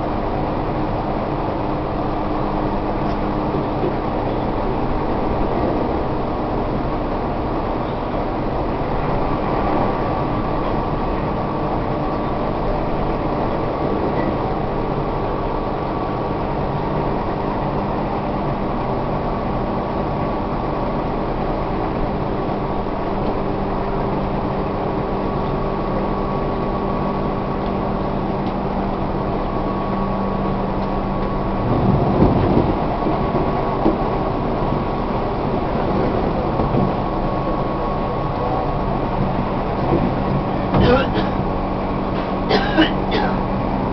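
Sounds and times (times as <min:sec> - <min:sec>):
train motor and gear hum: 0:00.0 - 0:43.9
wheel and rail rumble: 0:00.0 - 0:43.9.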